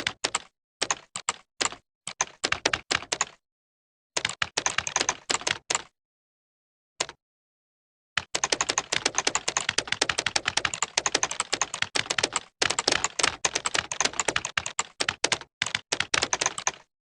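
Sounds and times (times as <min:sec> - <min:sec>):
fast keyboard typing: 0:00.0 - 0:03.4, 0:04.2 - 0:05.9, 0:08.2 - 0:16.9.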